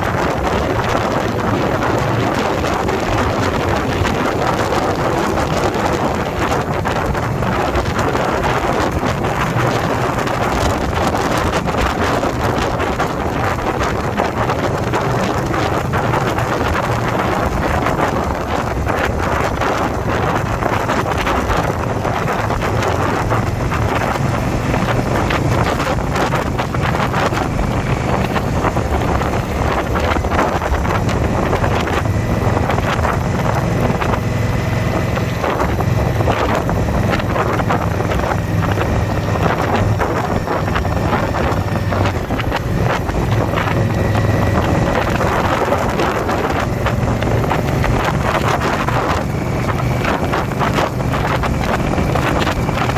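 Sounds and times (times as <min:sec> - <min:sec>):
motorcycle engine running: 0:00.0 - 0:52.9
wind rushing over microphone: 0:00.0 - 0:52.9.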